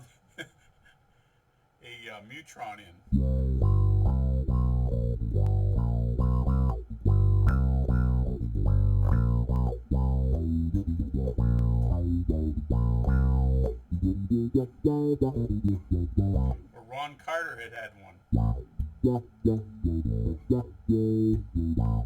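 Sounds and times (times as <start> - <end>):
electric bass with envelope filter: 3.1 - 16.6, 18.3 - 22.0.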